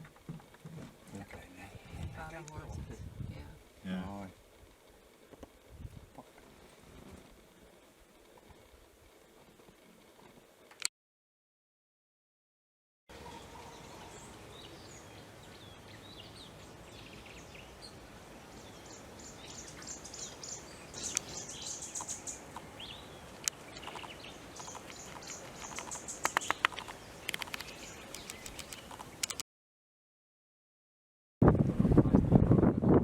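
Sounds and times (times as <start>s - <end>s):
background hiss: 0.0s - 10.8s, 13.3s - 29.4s
loud sharp bird calls: 18.8s - 29.3s
high bird chirps: 18.8s - 29.4s
fast repeated bird notes: 23.6s - 29.4s.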